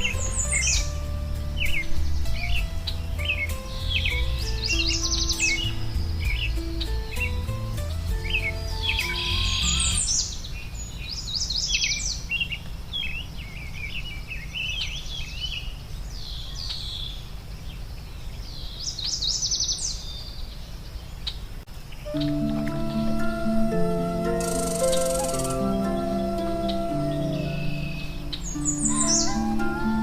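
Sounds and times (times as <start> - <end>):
soft music notes: 0.0 - 10.2, 22.0 - 30.0
songbirds singing: 0.0 - 30.0.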